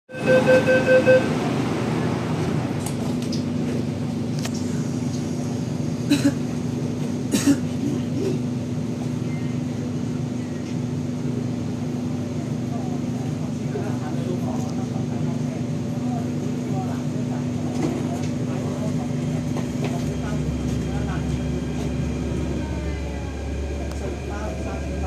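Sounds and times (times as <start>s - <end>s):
pulsed electronic beeping: 0.1s - 1.3s
train running-gear rumble: 0.1s - 25.0s
train traction inverter hum: 0.1s - 25.0s.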